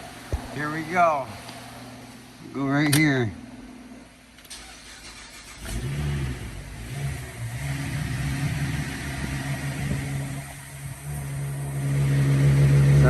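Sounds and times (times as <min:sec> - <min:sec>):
car engine starting and idling: 0:02.9 - 0:13.0.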